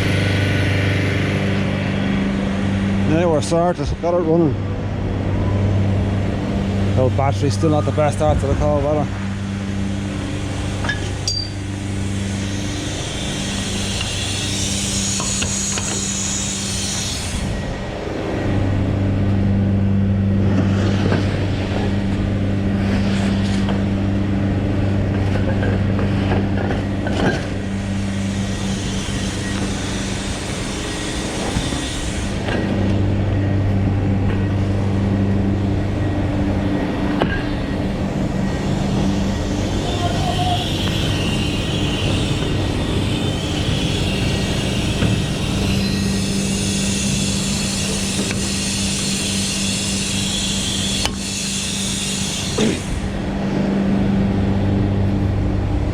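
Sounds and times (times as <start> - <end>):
truck engine humming: 4.4 - 20.4
hiss: 11.7 - 17.7, 27.4 - 32.6, 38.7 - 53.2.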